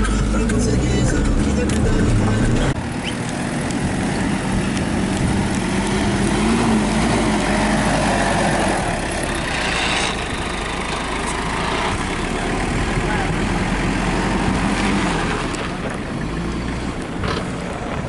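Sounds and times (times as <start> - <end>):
vehicle engine and road noise: 0.0 - 18.0.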